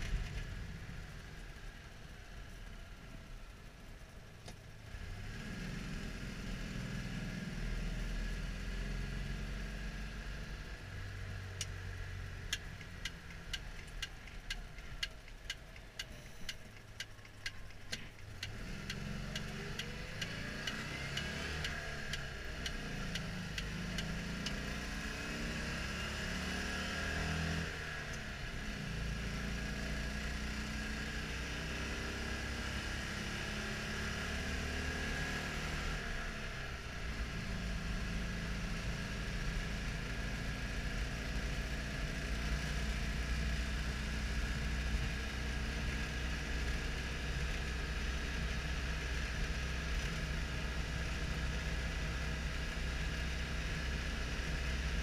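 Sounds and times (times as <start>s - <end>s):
car engine running: 0.0s - 31.2s.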